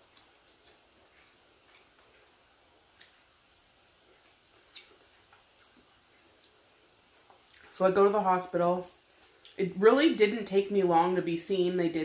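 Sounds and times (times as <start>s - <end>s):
quiet chewing: 0.0s - 7.8s, 8.8s - 9.6s.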